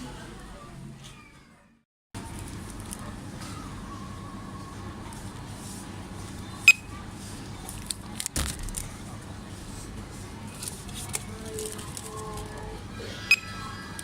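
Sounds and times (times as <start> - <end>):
supermarket background hum: 0.0 - 14.0.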